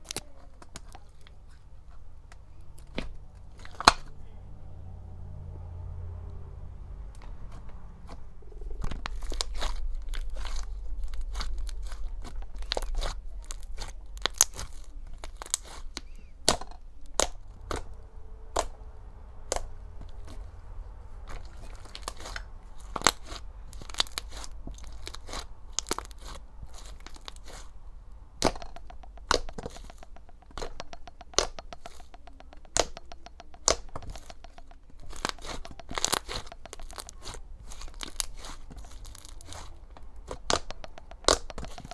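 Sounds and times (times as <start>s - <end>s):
slime being squished: 7.5s - 17.9s, 19.4s - 41.9s.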